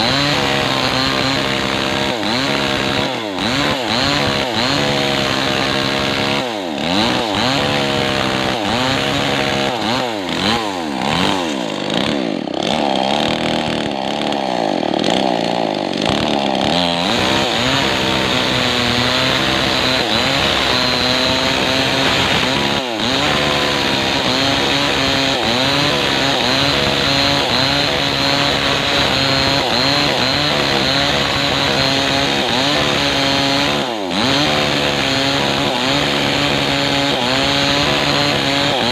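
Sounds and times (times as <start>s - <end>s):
chain cutting wood: 0.0s - 38.9s
chainsaw engine revving: 0.0s - 38.9s.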